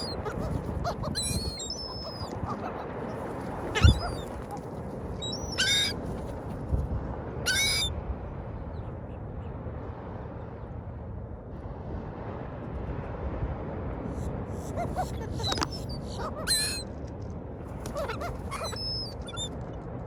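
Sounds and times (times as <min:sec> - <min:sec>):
seagull calls: 0:00.0 - 0:06.1, 0:07.5 - 0:07.9, 0:14.6 - 0:16.9, 0:17.8 - 0:19.6.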